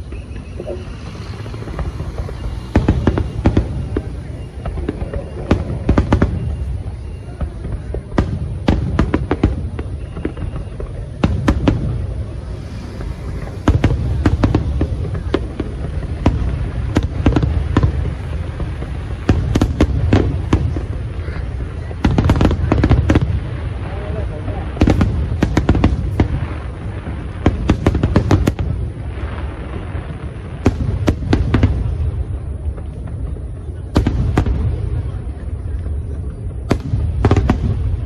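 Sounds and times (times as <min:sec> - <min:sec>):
low rumble: 0:00.0 - 0:06.0, 0:11.0 - 0:19.2
fireworks bangs and crackles: 0:00.0 - 0:38.0.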